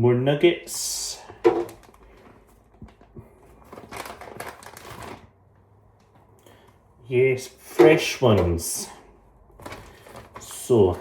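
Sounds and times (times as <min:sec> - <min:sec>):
rustling and clatter: 0:01.4 - 0:05.4, 0:09.5 - 0:11.0.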